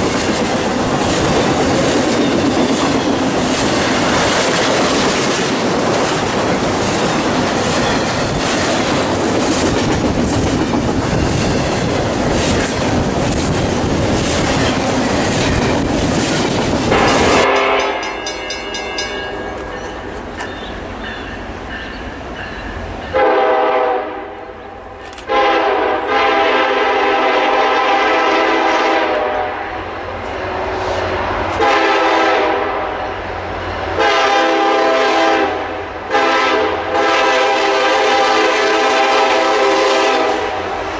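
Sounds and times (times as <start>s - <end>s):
train wheels clacking on rails: 0.0s - 23.4s
locomotive air horn blasts: 16.9s - 18.1s, 23.2s - 24.7s, 25.3s - 29.7s, 31.6s - 33.1s, 34.0s - 40.8s.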